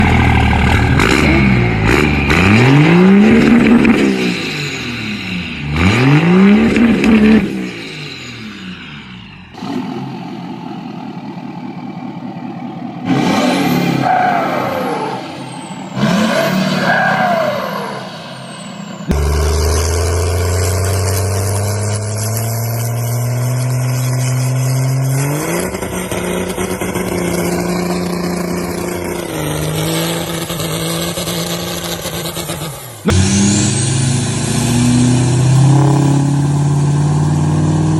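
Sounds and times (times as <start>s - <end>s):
engine revving: 0.0s - 11.0s, 12.5s - 37.9s
low engine drone: 0.0s - 29.7s, 32.7s - 37.9s
falling high tone sweeps: 13.5s - 21.0s.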